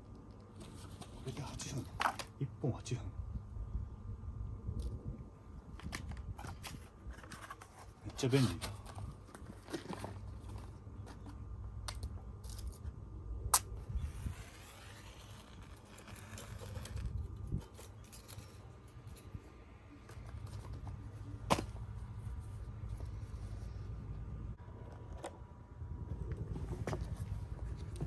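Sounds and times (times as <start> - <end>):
wind rumble on microphone: 3.0 - 7.4, 13.1 - 18.0, 22.0 - 28.0.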